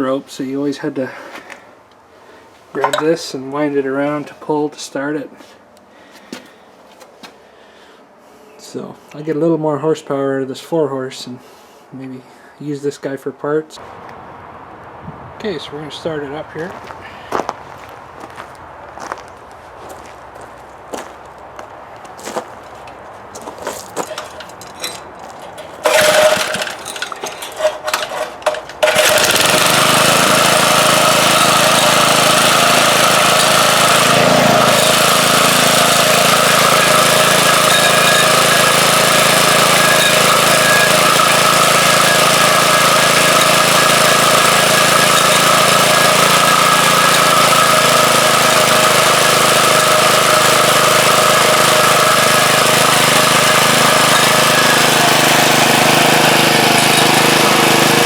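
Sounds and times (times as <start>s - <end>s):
small engine pull-started: 2.8s - 3.1s, 23.9s - 58.0s.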